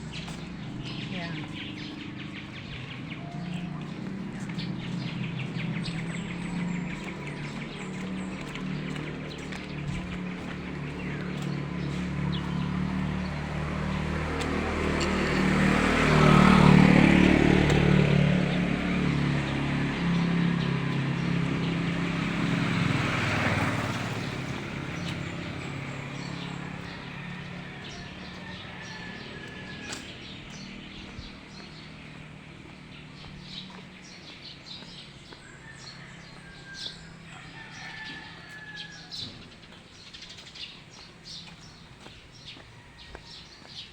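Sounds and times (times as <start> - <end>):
vehicle passing by: 0.0 - 43.9.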